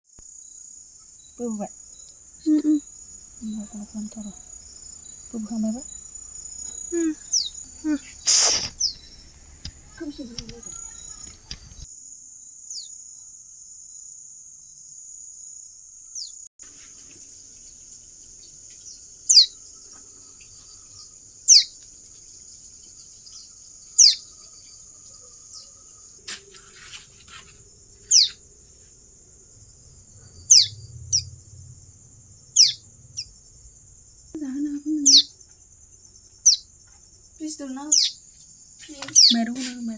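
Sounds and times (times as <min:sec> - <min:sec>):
high-pitched insect drone: 0:00.4 - 0:26.8, 0:27.7 - 0:36.7
bird sharp falling call: 0:08.2 - 0:09.1.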